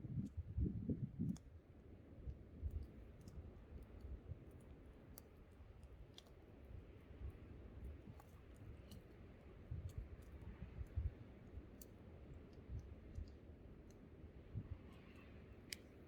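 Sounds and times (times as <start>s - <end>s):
low wind rumble: 0.0s - 1.4s.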